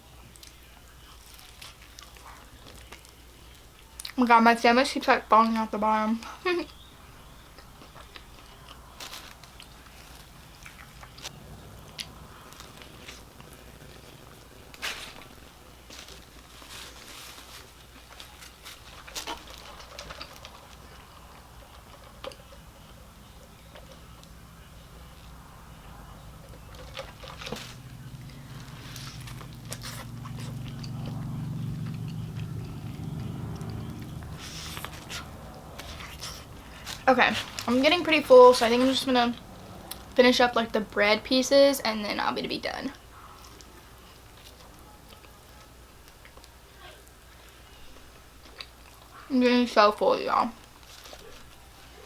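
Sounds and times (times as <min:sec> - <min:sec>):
low steady hum: 0:00.0 - 0:52.0
person chewing and biting food: 0:06.7 - 0:24.4, 0:26.4 - 0:37.7.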